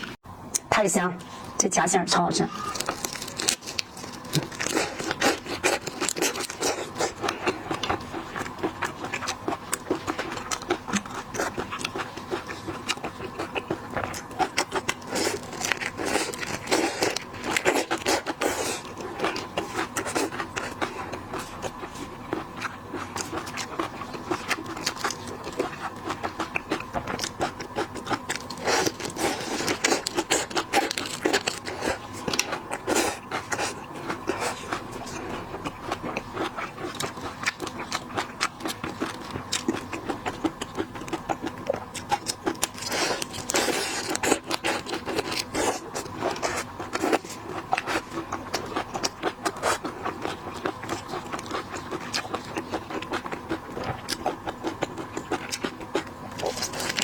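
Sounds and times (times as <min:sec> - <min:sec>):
eating seafood: 0:00.0 - 0:57.0.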